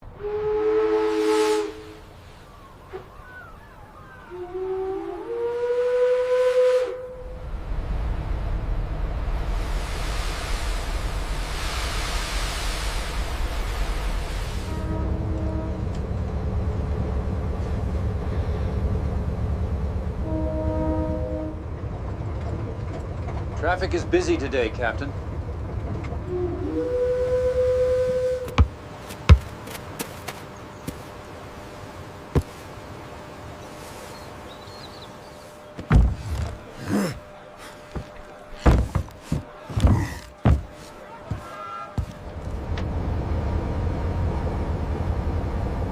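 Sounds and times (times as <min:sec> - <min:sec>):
ship's horn blast: 0:00.0 - 0:02.2, 0:04.3 - 0:07.4, 0:14.6 - 0:16.1, 0:20.2 - 0:21.7, 0:26.2 - 0:28.6
constant low rumble: 0:07.0 - 0:45.9
low background noise: 0:28.0 - 0:45.8
heavy thumps and knocks: 0:28.5 - 0:30.1, 0:32.4 - 0:32.6, 0:35.8 - 0:37.2, 0:37.9 - 0:42.2.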